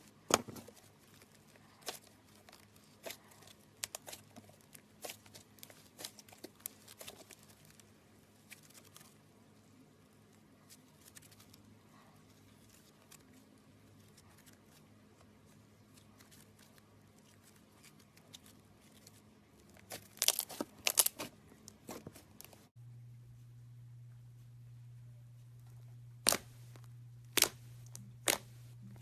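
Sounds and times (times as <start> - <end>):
low steady hum: 0.0 - 29.0
slime crackling and popping: 19.8 - 22.0, 28.2 - 28.5.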